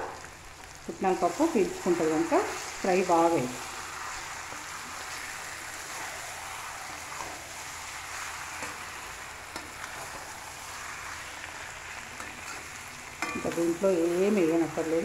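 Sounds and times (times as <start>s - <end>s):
chicken sizzling in oil: 0.0s - 15.0s
spatula stirring: 3.7s - 15.0s.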